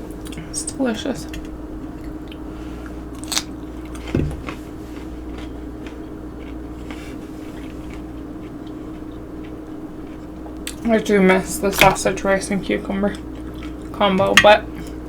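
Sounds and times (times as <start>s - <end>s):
steady low hum: 0.0s - 15.0s
person chewing food: 1.3s - 10.9s, 13.1s - 15.0s
low thump: 4.1s - 4.4s.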